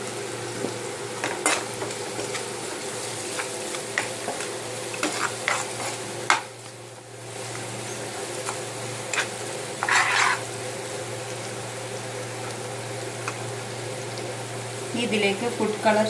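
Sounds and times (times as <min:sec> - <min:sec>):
food sizzling in hot oil: 0:00.0 - 0:16.0
utensil scraping and knocking pan: 0:05.0 - 0:06.4, 0:09.1 - 0:10.4.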